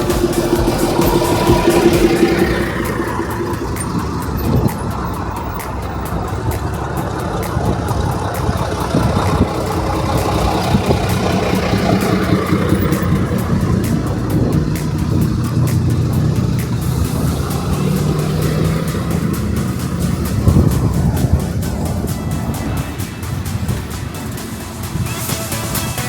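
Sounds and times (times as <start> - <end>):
bus diesel engine running: 0.0 - 26.0.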